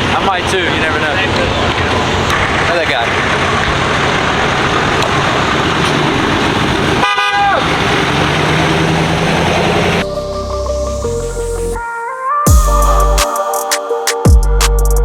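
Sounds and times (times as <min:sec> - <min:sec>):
low engine drone: 0:00.0 - 0:07.0, 0:07.6 - 0:11.8, 0:12.5 - 0:13.2
loud vehicle noise: 0:00.0 - 0:11.8
vehicle horn blast: 0:07.0 - 0:08.0.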